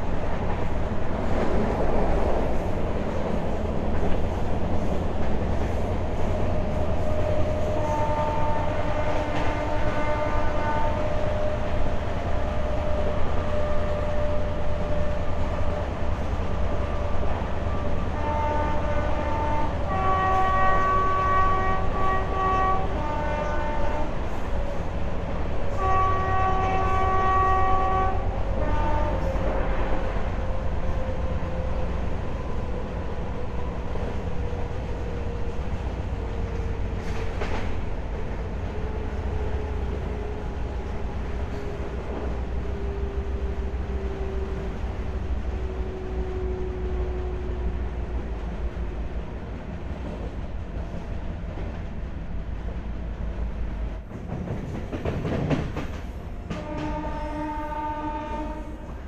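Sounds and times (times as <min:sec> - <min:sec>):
train running on track: 0:00.0 - 0:59.0
multi-note train horn blasts: 0:07.4 - 0:11.7, 0:17.7 - 0:24.3, 0:25.7 - 0:29.6, 0:56.5 - 0:59.0.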